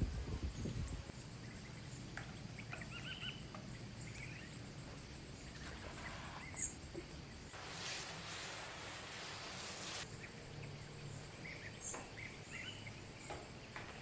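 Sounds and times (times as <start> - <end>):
faint birds chirping: 0.0 - 7.6, 10.0 - 14.0
bright high hiss: 7.5 - 10.1.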